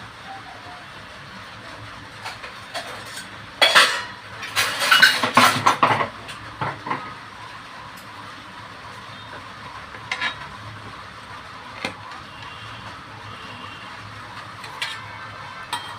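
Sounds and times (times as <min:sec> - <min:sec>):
steel kitchen utensils clattering: 0:02.2 - 0:07.0, 0:10.0 - 0:10.5, 0:14.6 - 0:15.9.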